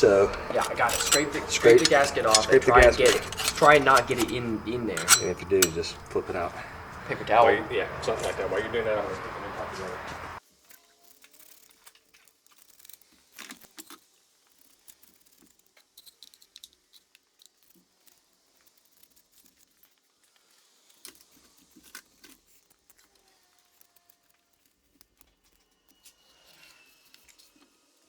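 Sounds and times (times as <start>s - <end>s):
louder clicks: 0.0s - 7.2s
hand tools clinking and tapping: 0.0s - 10.4s.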